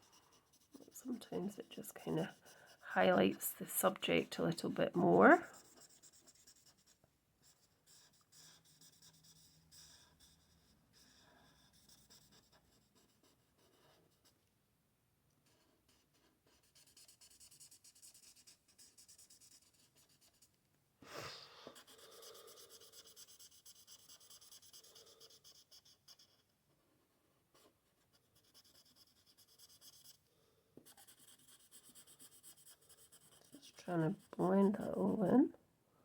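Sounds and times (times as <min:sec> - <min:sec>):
marker scratching on paper: 0:00.0 - 0:14.3, 0:15.4 - 0:20.5, 0:21.8 - 0:26.5, 0:27.6 - 0:30.2, 0:30.8 - 0:35.2.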